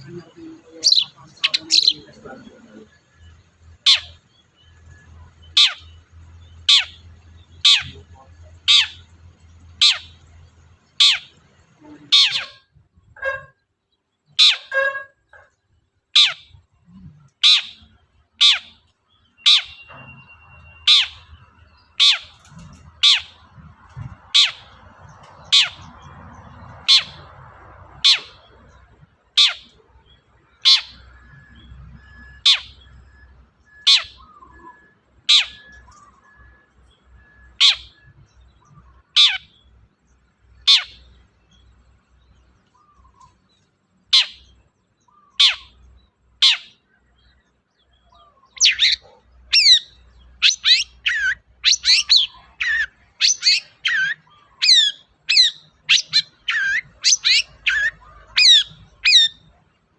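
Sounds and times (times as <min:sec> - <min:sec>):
shrike calling sharp harsh notes: 0:00.0 - 0:02.8
scratchy chattering birdsong: 0:00.0 - 0:59.9.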